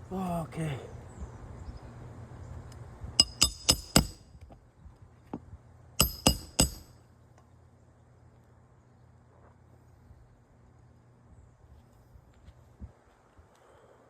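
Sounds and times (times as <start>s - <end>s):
hammer clinking on metal: 3.2s - 4.2s, 6.0s - 6.9s.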